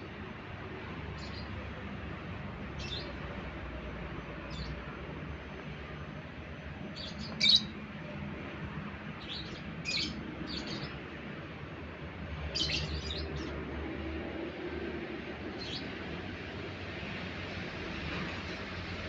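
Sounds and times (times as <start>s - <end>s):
bird chirping: 6.9s - 7.7s, 9.2s - 11.0s, 12.5s - 13.5s.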